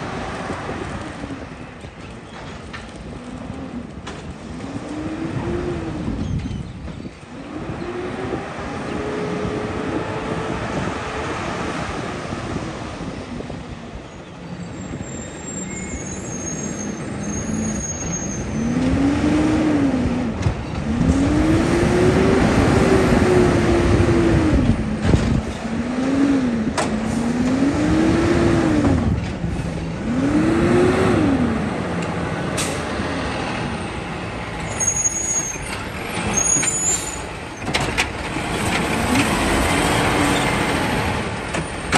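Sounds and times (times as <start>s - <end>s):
diesel engine revving: 3.0s - 6.2s, 7.3s - 13.5s, 17.0s - 41.9s
short high squeals: 14.7s - 18.6s, 34.6s - 37.7s.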